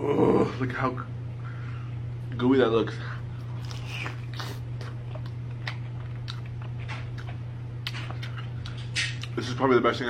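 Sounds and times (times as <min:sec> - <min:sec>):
crunchy chewing: 0:03.4 - 0:09.4.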